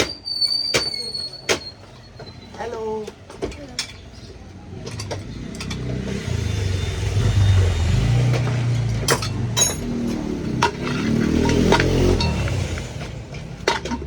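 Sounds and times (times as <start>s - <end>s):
engine running: 4.6s - 14.0s.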